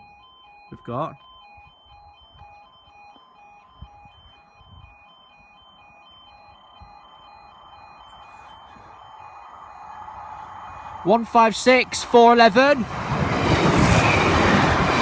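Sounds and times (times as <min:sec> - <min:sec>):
level crossing two-tone alarm: 0:00.0 - 0:13.0
diesel train approaching: 0:03.4 - 0:15.0.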